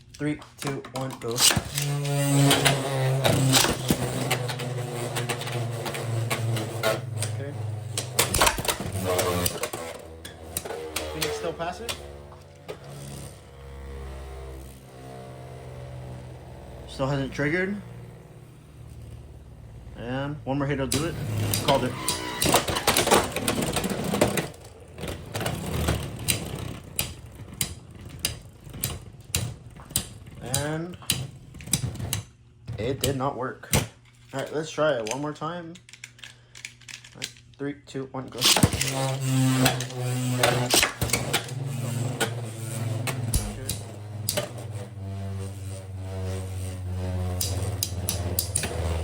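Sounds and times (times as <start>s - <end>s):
tops clacking together: 0.0s - 13.3s, 20.8s - 32.3s, 38.4s - 45.2s, 47.2s - 49.0s
spinning tops whirring: 0.0s - 32.3s, 38.4s - 49.0s
plastic toy parts clicking: 20.9s - 32.3s, 35.0s - 37.6s, 43.1s - 44.5s, 47.4s - 49.0s.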